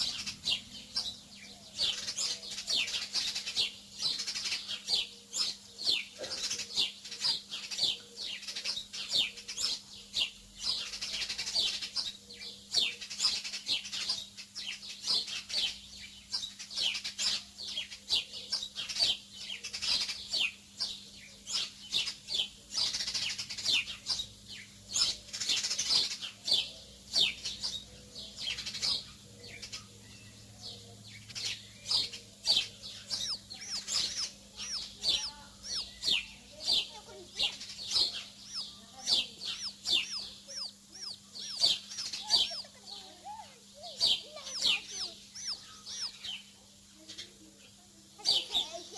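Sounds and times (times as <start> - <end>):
small birds chirping: 0.0 - 48.9
faint low hum: 17.6 - 48.9.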